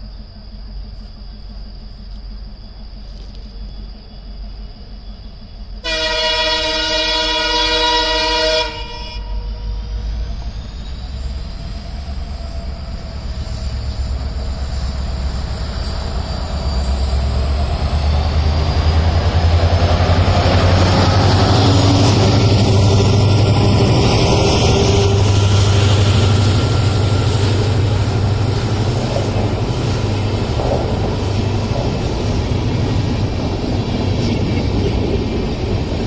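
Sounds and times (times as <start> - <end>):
approaching train rumbling: 0.0 - 36.0
train horn blast: 5.8 - 10.0.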